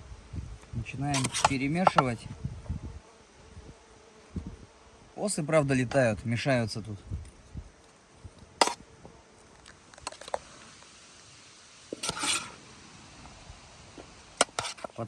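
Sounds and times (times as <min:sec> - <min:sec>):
scraping rustle: 0:01.1 - 0:02.4, 0:07.2 - 0:10.9, 0:11.9 - 0:12.6, 0:14.0 - 0:15.0
spoon stirring food in a bowl: 0:01.2 - 0:02.1, 0:14.4 - 0:14.9.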